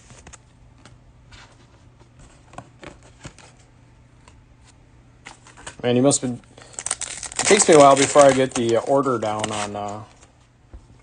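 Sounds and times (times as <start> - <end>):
cards brushing: 7.1 - 10.2.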